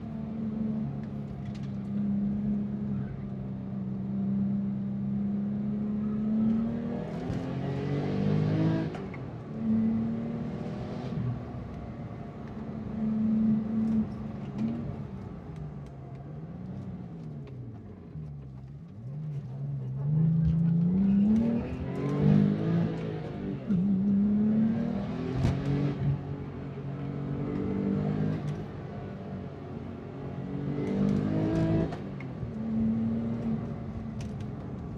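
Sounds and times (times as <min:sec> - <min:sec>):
car engine revving: 0:19.9 - 0:26.4, 0:30.0 - 0:34.3.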